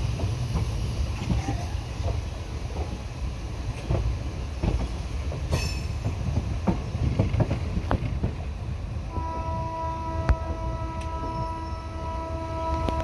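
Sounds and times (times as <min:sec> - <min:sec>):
train coach rumbling: 0:00.0 - 0:13.0
wheels clacking over rail joints: 0:00.1 - 0:08.7.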